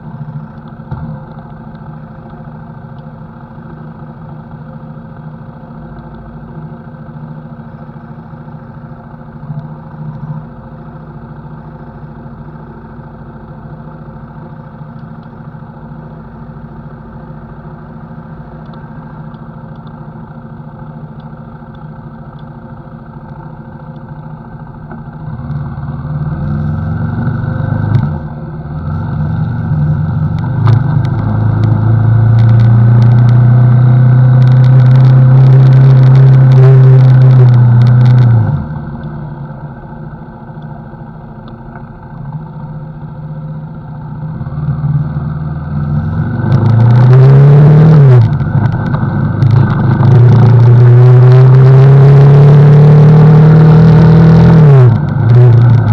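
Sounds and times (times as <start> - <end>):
motorcycle engine revving: 15.7 - 55.9.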